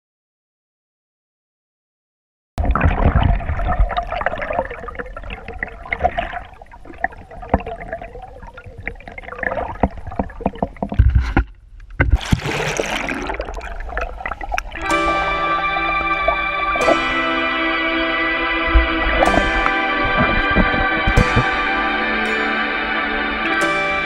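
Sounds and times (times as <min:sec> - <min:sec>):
water sloshing and gurgling: 0:02.6 - 0:17.0, 0:18.2 - 0:22.2.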